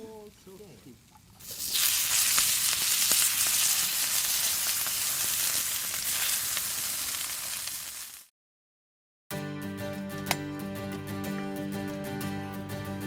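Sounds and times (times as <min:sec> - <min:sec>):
food sizzling over fire: 0:00.0 - 0:08.3.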